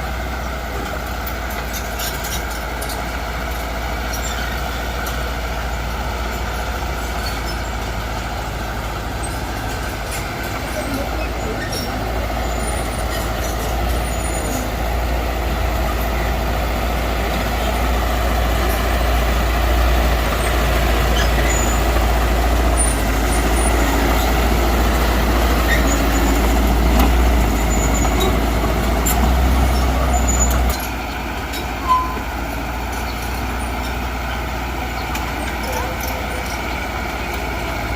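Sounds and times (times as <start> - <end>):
diesel engine of earthmoving machinery: 0.0 - 37.9.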